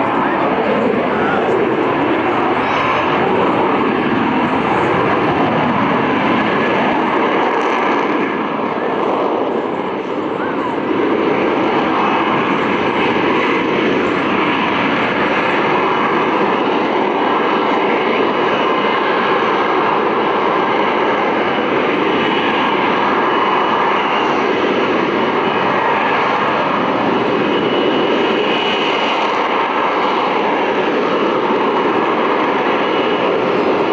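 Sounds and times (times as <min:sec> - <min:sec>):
airplane engine running loudly: 0:00.0 - 0:33.9.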